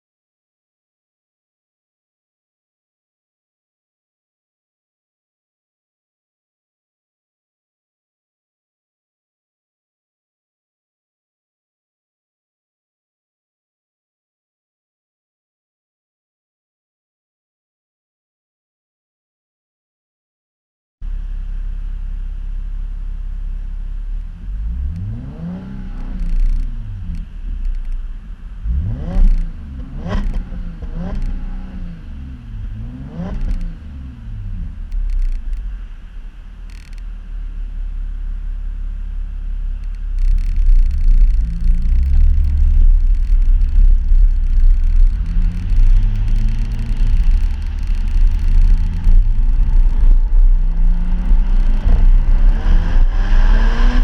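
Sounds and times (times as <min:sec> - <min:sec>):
car engine idling and revving: 0:21.0 - 0:54.0.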